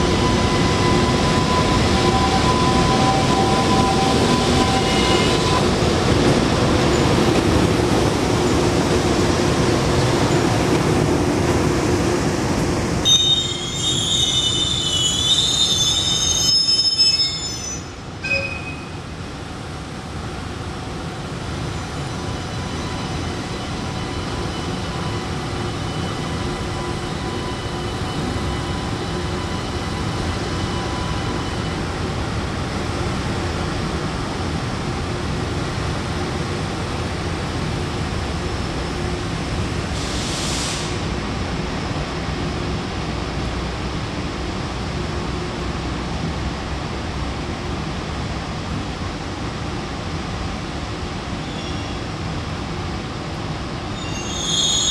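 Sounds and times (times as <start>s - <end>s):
train wheels squealing: 0.0s - 5.7s, 13.0s - 19.0s, 21.8s - 31.9s, 51.4s - 52.1s, 53.9s - 54.9s
train rumbling on rails: 0.0s - 54.9s.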